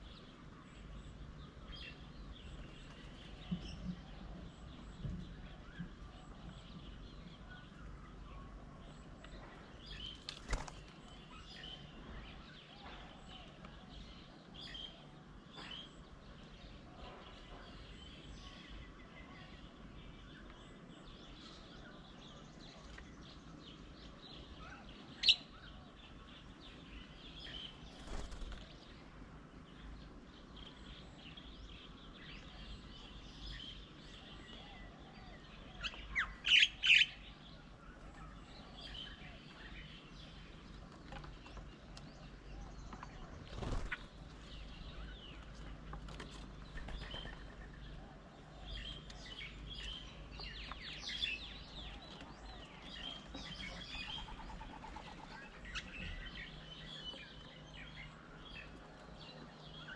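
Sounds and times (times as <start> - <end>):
birds chirping and calling: 0.0 - 59.9
sharp bird calls: 24.5 - 29.0, 34.2 - 40.6.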